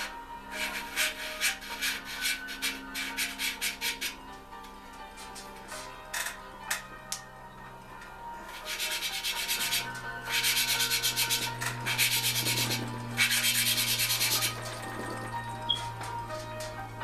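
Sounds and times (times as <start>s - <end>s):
valve scraping gritty seat: 0.0s - 4.2s, 8.5s - 16.0s.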